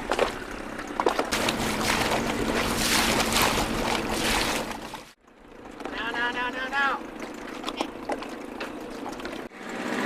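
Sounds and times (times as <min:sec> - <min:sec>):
boat splashing through choppy water: 0:00.0 - 0:05.2.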